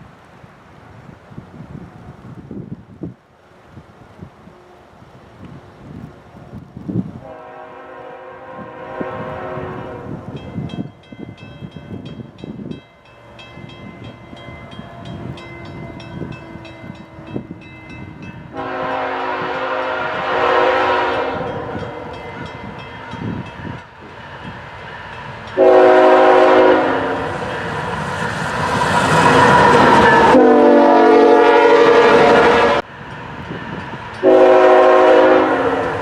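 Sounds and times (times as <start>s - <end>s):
locomotive air horn blasts: 7.2s - 10.2s, 18.5s - 22.8s, 25.6s - 27.5s, 29.2s - 32.9s, 34.2s - 36.0s
locomotive rumble: 8.5s - 36.0s.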